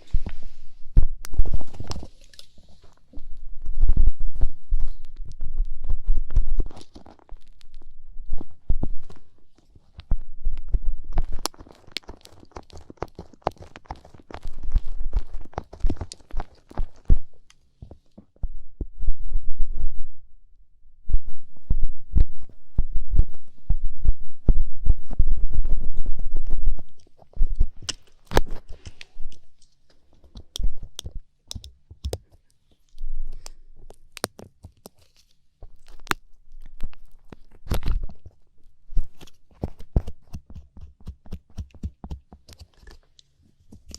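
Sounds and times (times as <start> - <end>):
crackling clicks: 3.9 - 17.6.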